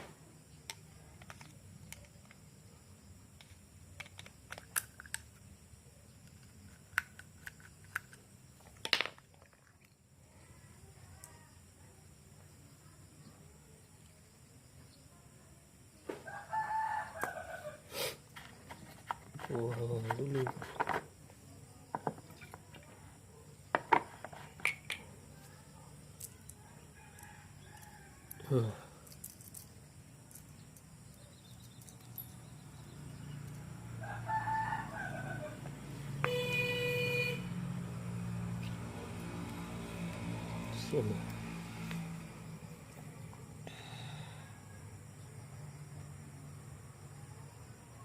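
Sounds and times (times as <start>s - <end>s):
small parts and tools clicking: 0.6s - 2.5s, 3.4s - 5.5s, 6.2s - 10.0s, 23.8s - 32.5s
parts rattling: 18.3s - 21.1s, 29.0s - 30.9s
light clicks of small metal parts: 29.0s - 32.4s.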